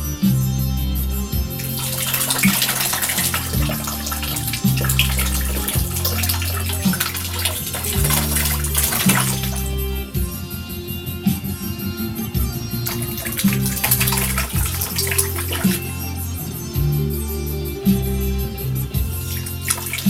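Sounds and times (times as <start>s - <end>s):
background music with bass line: 0.0s - 20.0s
water fountain splashing: 1.6s - 10.0s, 12.8s - 16.0s, 19.3s - 20.0s.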